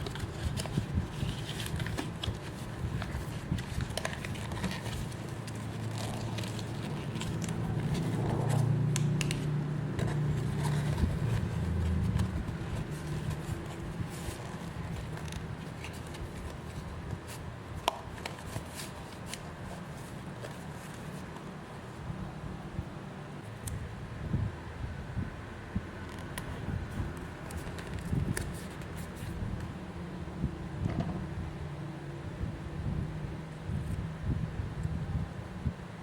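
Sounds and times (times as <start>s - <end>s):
handling noises: 0.0s - 22.1s.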